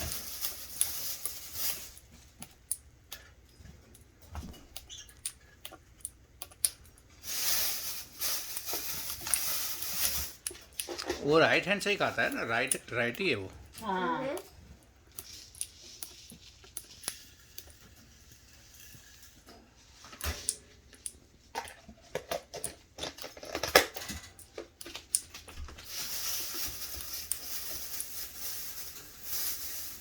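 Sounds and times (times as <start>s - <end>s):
bird beak clicking and tapping: 2.4s - 6.9s
soft rustling: 25.7s - 30.0s.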